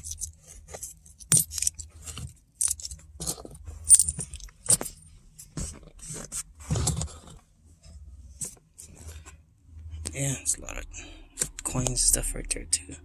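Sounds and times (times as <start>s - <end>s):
coins clinking: 0.0s - 1.9s, 2.6s - 5.0s.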